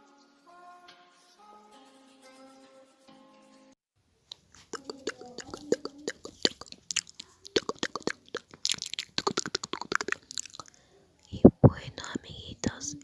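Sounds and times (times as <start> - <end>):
sharp clicks taps and pops: 4.3 - 10.7.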